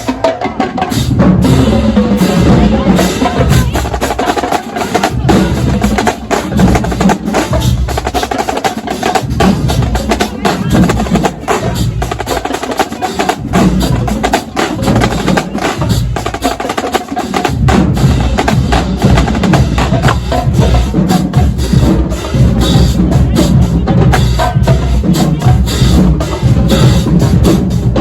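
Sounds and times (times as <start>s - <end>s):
drumline playing a cadence: 0.0s - 28.0s
deep bass drums: 1.1s - 4.0s, 17.4s - 28.0s.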